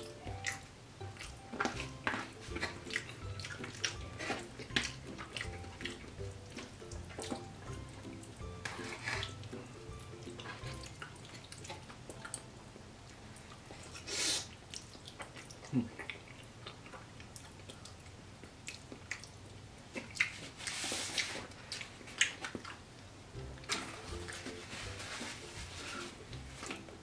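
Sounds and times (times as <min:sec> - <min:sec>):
person chewing wet mouth clicks: 0:13.4 - 0:20.5.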